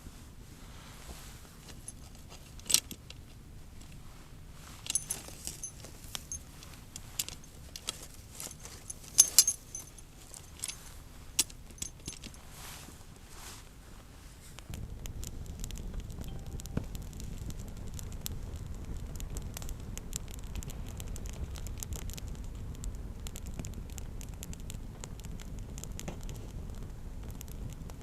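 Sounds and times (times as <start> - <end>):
small metal objects clinking: 4.8 - 10.8, 11.4 - 12.4.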